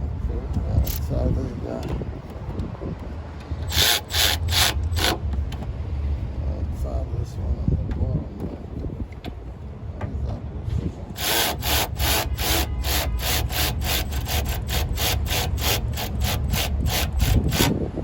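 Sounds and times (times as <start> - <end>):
hand tool rasping strokes: 3.6 - 5.2, 11.2 - 17.8.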